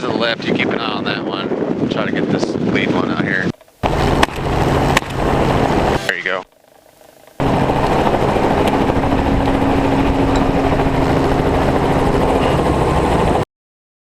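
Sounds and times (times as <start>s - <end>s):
helicopter rotor and engine: 1.5s - 13.4s.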